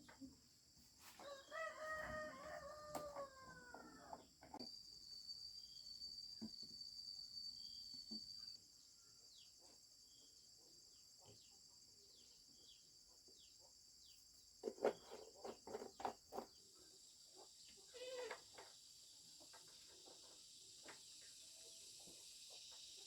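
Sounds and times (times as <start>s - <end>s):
high insect trill: 1.2s - 9.5s, 16.8s - 23.0s.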